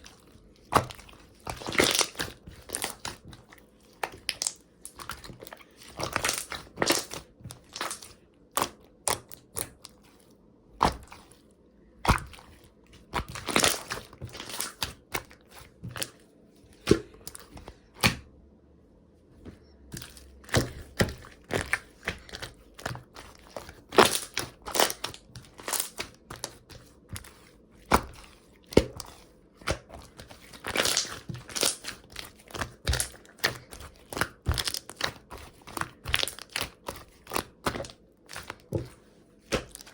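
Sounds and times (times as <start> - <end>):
slime popping and crackling: 0.7 - 3.4, 4.0 - 10.0, 13.1 - 16.1, 20.0 - 27.3, 29.7 - 38.9, 39.5 - 39.9.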